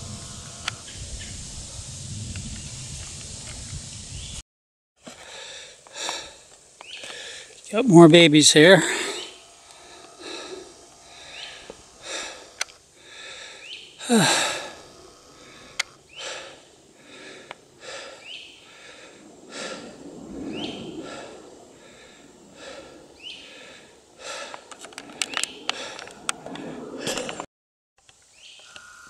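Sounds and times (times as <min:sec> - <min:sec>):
young alligators chirping: 0:08.6 - 0:16.7.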